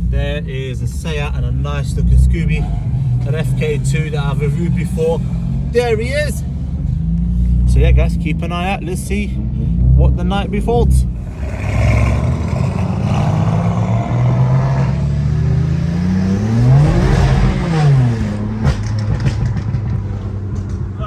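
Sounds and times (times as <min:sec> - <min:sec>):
car engines running: 0:00.0 - 0:21.0
engine rising in pitch: 0:10.9 - 0:19.7.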